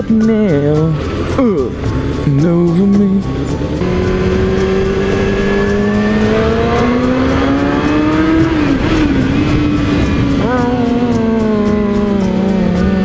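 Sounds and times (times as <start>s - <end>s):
motorcycle engine accelerating: 3.4s - 13.0s.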